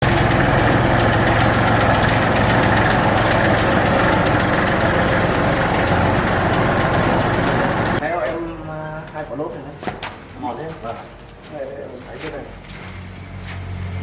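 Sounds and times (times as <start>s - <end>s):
diesel engine knocking: 0.0s - 8.0s.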